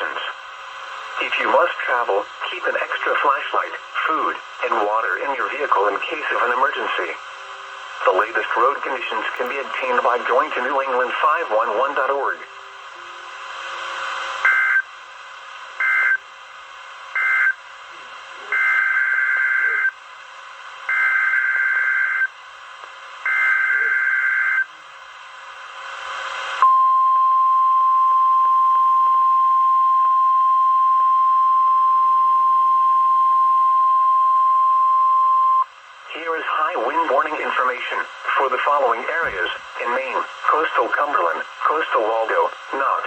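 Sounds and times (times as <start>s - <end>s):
radio hiss: 0.0s - 26.6s, 35.3s - 43.0s
steady warning alarm tone: 14.4s - 14.9s, 15.8s - 16.2s, 17.1s - 17.6s, 18.5s - 20.0s, 20.9s - 22.4s, 23.3s - 24.7s.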